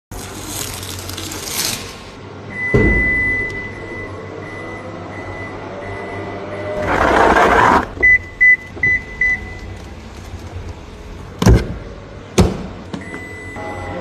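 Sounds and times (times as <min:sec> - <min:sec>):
thump: 0:02.7 - 0:03.2
high warning tone: 0:13.3 - 0:14.0.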